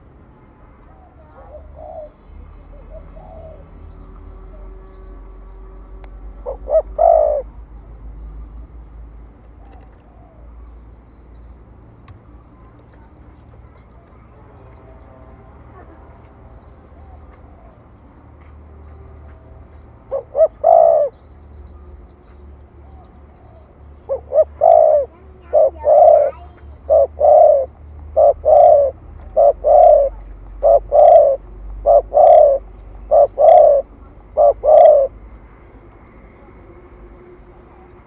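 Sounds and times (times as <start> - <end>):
dove cooing: 0.9 - 3.8, 6.3 - 7.5, 9.5 - 10.5, 20.0 - 21.2, 22.8 - 35.2.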